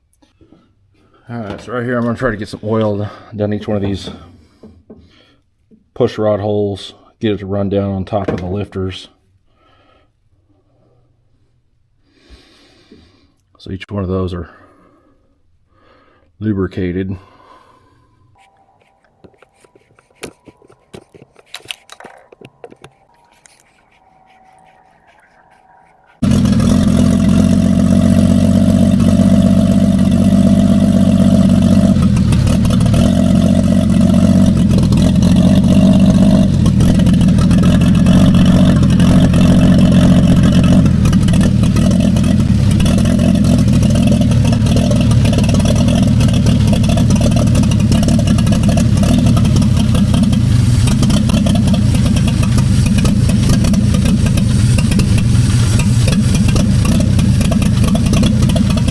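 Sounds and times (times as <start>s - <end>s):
truck engine running: 26.0s - 58.9s.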